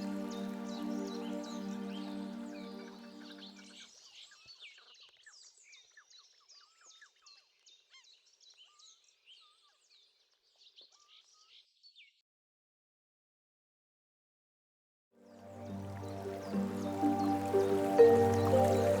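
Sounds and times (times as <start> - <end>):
soft music: 0.0 - 3.8, 15.2 - 19.0
small birds chirping: 15.4 - 19.0.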